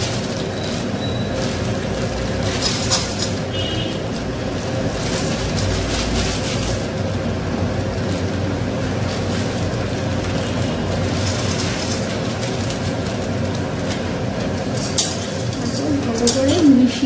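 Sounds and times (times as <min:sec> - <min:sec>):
noodles sizzling in hot oil: 0:00.0 - 0:17.0.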